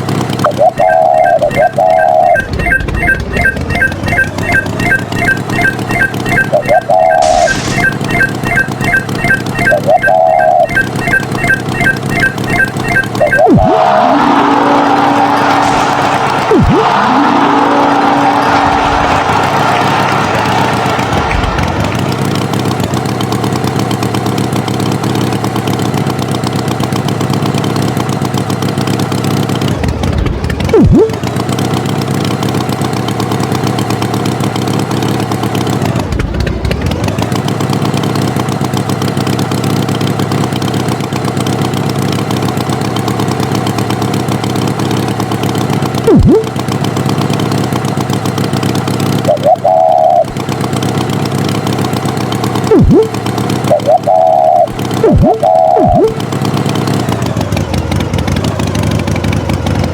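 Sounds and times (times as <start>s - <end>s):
tractor engine running: 0.0s - 59.9s
loud pitched sounds: 0.4s - 21.6s, 30.7s - 31.2s, 46.1s - 46.6s, 49.2s - 50.4s, 52.6s - 56.2s.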